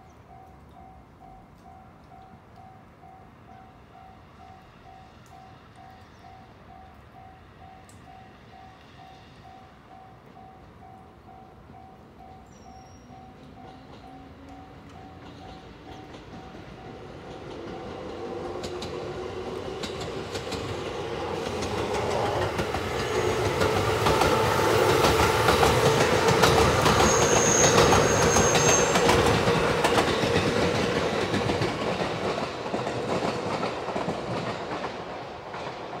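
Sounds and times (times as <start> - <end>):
electric train humming: 13.3 - 36.0
train wheels clacking over joints: 13.3 - 36.0
brief high squeal: 26.9 - 29.1.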